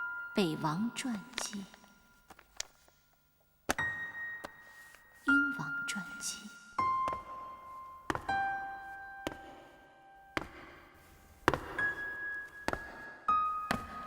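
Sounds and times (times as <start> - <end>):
slow piano melody: 0.0 - 2.3, 3.8 - 14.0.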